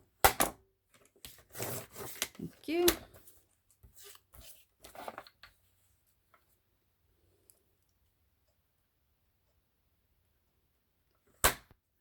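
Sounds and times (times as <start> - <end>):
paper being handled: 1.3 - 5.4.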